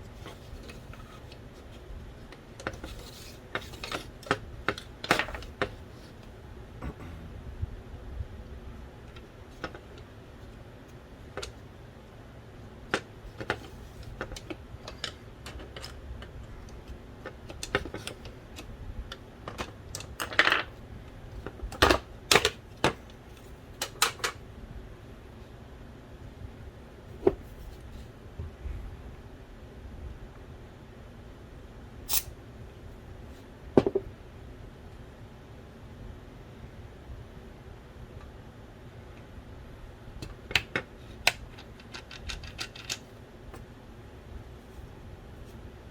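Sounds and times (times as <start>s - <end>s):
small parts clicking and tapping: 40.2s - 43.6s.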